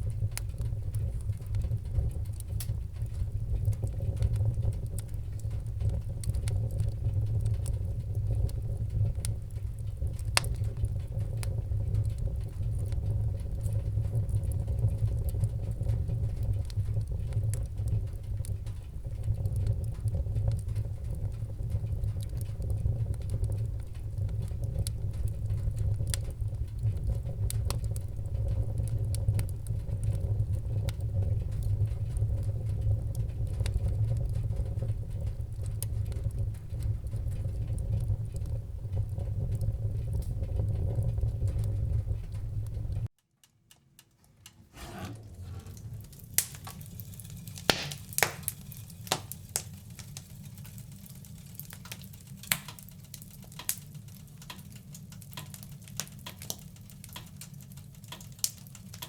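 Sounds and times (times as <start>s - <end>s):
wood fire crackling: 0.0s - 59.0s
sharp pops of fire: 44.8s - 59.0s.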